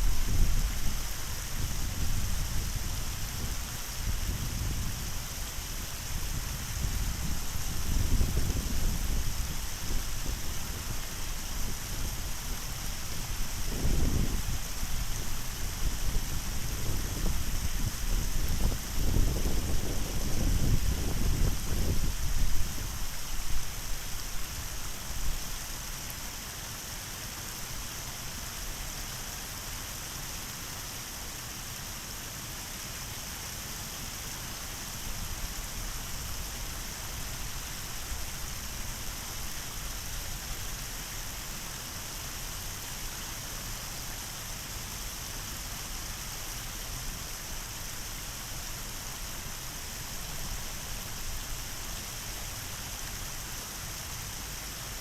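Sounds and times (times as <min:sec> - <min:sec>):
small waterfall splashing: 0:00.0 - 0:55.0.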